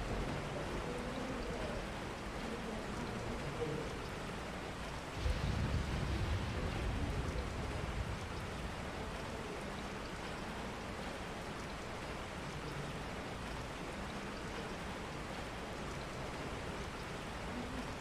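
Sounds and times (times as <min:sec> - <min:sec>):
steady rain falling: 0:00.0 - 0:18.0
low rumble: 0:05.2 - 0:09.6.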